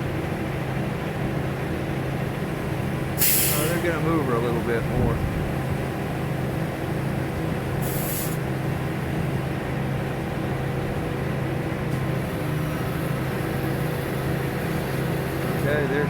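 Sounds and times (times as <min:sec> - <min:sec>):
crane diesel engine running: 0:00.0 - 0:16.0
air hiss: 0:03.2 - 0:03.8, 0:07.8 - 0:08.4.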